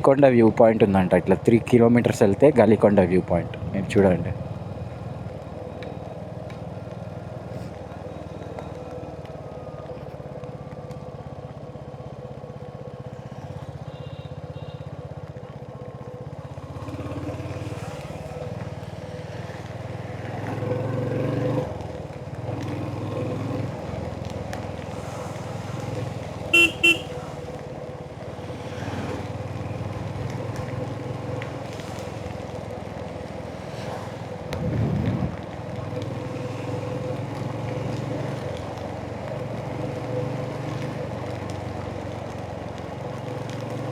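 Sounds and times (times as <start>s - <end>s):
motorcycle engine running: 4.4s - 43.9s
horn toots: 26.4s - 27.5s.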